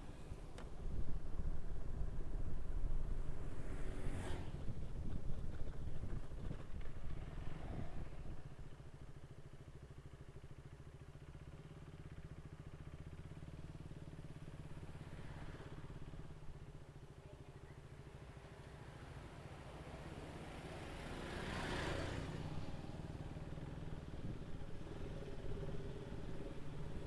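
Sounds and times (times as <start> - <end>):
motorcycle engine running: 0.2 - 19.6.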